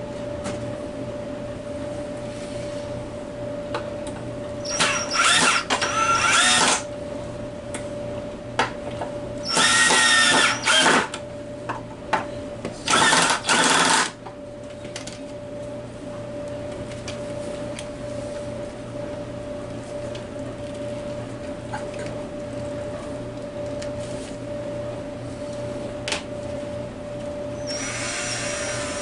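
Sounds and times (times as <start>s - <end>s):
steady low hum: 0.0s - 29.0s
power drill driving screws: 4.7s - 6.8s, 9.5s - 11.1s, 12.9s - 14.1s, 27.7s - 29.0s.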